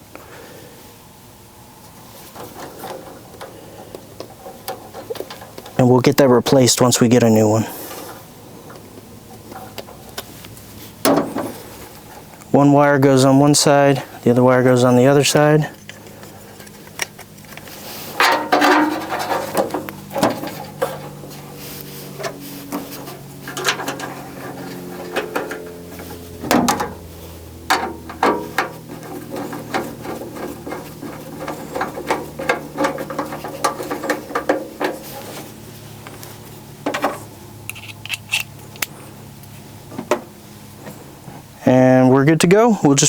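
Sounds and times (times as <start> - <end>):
faint steady hum: 0.0 - 43.0
tools clicking and scraping metal: 15.8 - 27.0, 27.7 - 36.3, 36.9 - 39.0.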